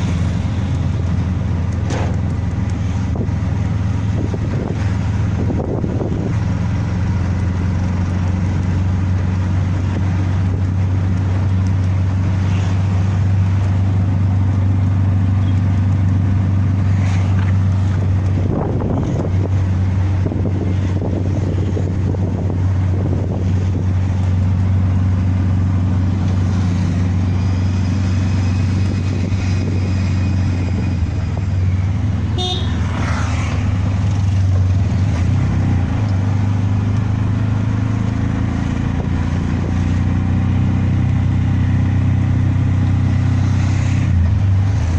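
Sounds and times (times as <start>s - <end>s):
vehicle engine droning: 0.0s - 44.9s
faint long horn note: 32.4s - 33.0s.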